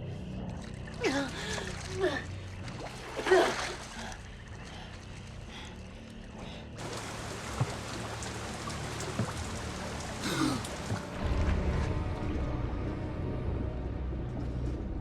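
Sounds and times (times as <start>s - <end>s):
running water trickling: 0.3s - 11.2s
rain hissing: 6.8s - 11.2s.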